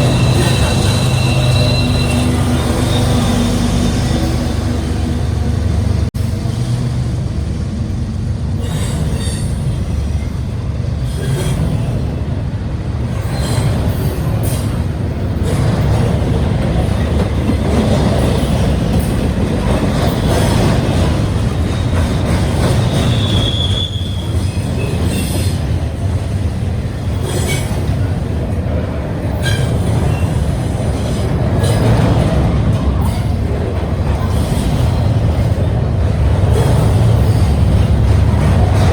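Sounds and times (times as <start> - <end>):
high wheel squeal: 0.0 - 5.4, 22.7 - 25.6
train wheels rumbling on rail: 0.0 - 38.9.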